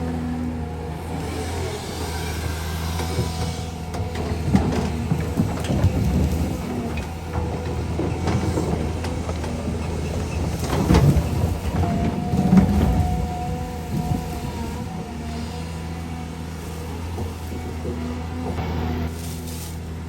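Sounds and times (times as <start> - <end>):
heavy diesel machinery running: 0.0 - 20.0
metallic knocks and clanks: 3.9 - 14.3.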